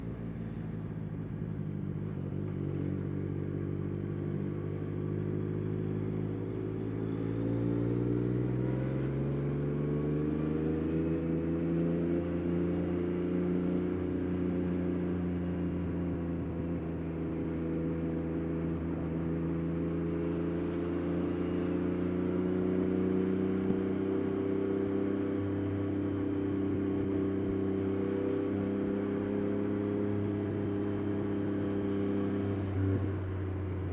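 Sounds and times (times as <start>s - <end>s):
motorcycle engine revving: 3.8s - 33.9s.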